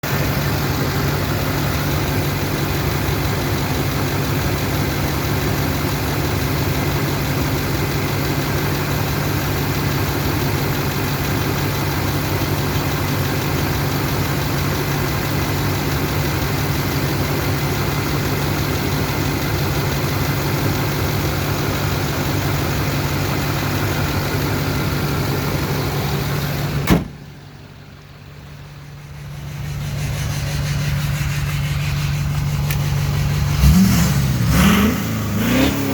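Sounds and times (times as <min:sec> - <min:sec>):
diesel engine idling: 0:00.0 - 0:35.9
sharp click: 0:26.9 - 0:27.2.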